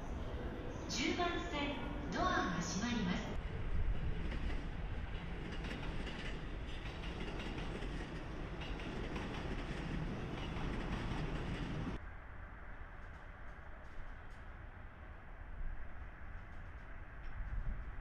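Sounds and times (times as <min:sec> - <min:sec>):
electric train rumbling: 0:00.0 - 0:18.0.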